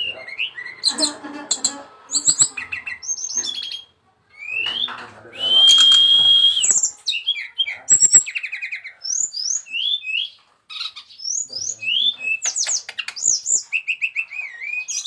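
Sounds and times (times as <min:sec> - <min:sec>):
bird singing whistled notes: 0:02.2 - 0:10.4, 0:11.2 - 0:15.0.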